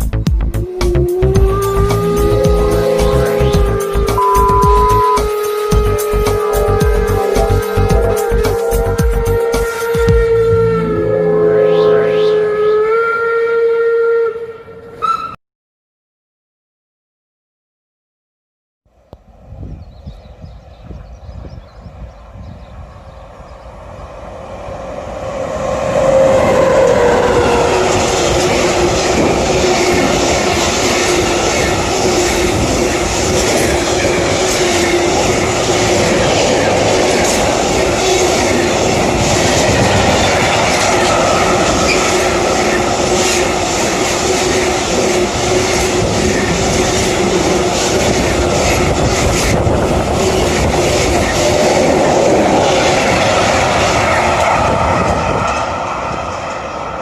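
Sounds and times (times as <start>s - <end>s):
train rumbling past: 0.0s - 13.0s, 19.3s - 57.0s
train whine: 0.4s - 15.2s, 19.2s - 57.0s
train wheels clicking on rails: 24.3s - 57.0s.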